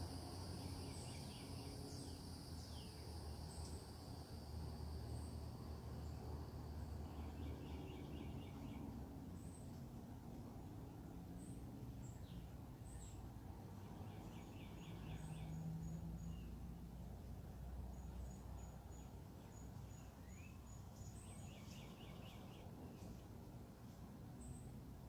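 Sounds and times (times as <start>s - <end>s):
small birds chirping: 0.1s - 3.9s, 7.0s - 9.9s, 11.0s - 17.1s, 17.9s - 23.4s.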